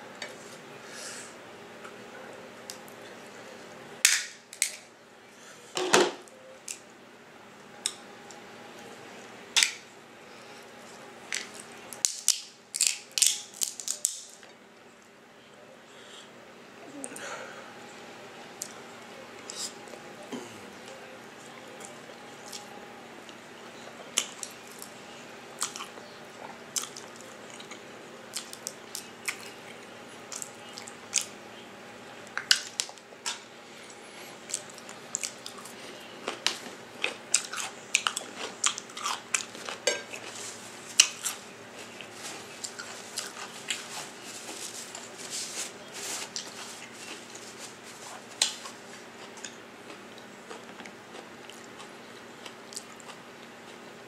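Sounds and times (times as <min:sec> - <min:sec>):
person chewing food: 0:25.6 - 0:31.3, 0:32.4 - 0:45.2, 0:46.0 - 0:53.8.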